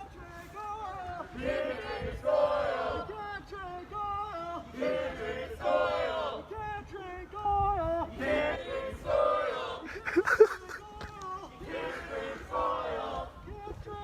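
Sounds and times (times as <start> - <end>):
crowd chanting: 1.2 - 6.6, 8.0 - 9.9, 11.4 - 13.4.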